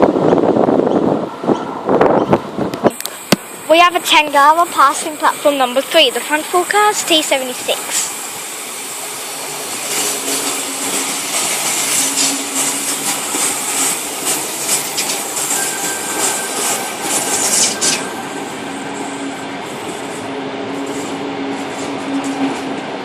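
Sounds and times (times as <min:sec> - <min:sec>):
electric train passing: 0:00.0 - 0:23.0
train wheels hissing and clicking: 0:02.8 - 0:22.9.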